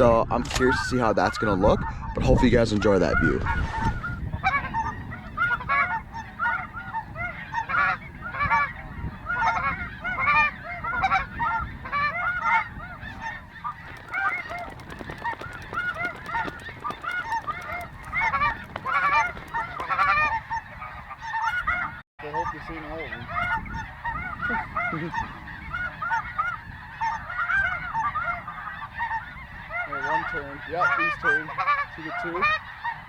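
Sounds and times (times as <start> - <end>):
geese honking: 13.1 - 20.7.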